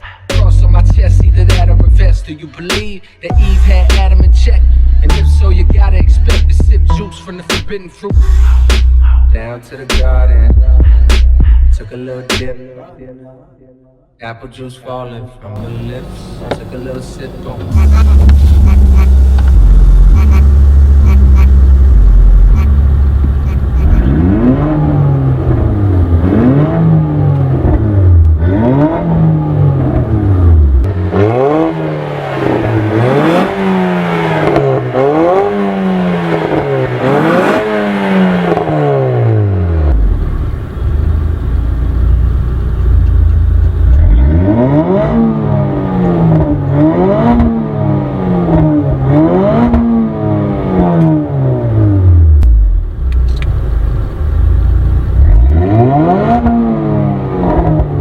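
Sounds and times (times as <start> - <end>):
car engine revving: 3.3 - 6.8, 15.6 - 58.0.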